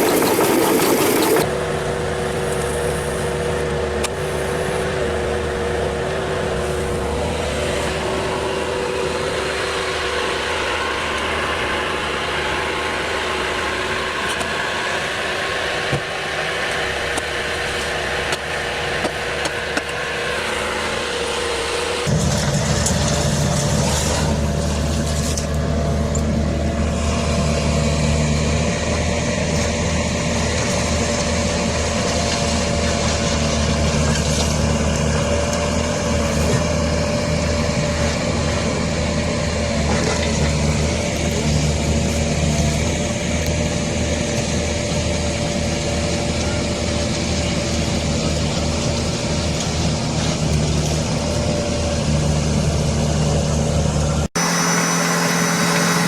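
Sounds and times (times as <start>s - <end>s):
steady whine: 0.0s - 1.7s, 53.8s - 56.0s
farm machine engine droning: 0.0s - 56.0s.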